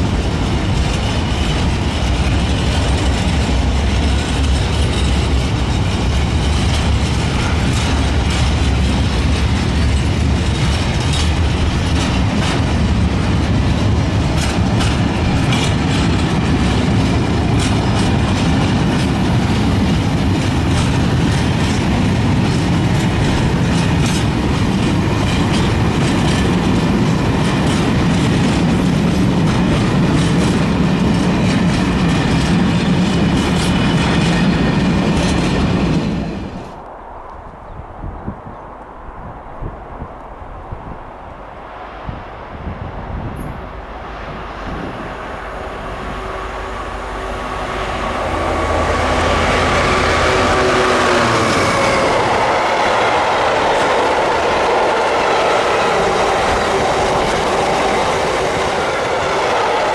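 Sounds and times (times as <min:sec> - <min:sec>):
wheels clicking over rail joints: 0:00.0 - 0:36.8
wheel-on-rail rumble: 0:00.0 - 0:37.0, 0:40.2 - 0:59.9.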